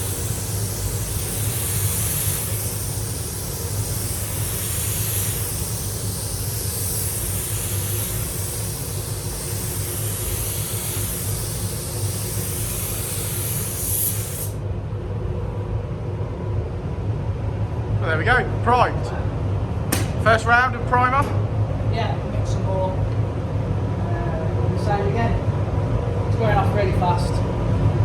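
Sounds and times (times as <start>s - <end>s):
spray gun hissing: 0.0s - 14.6s.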